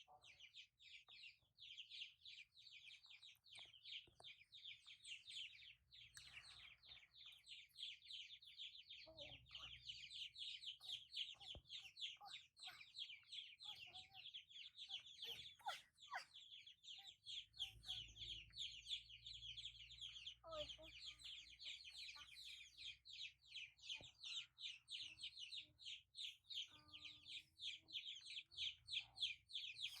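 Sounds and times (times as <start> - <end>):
fast high-pitched animal chirping: 9.1 - 18.8.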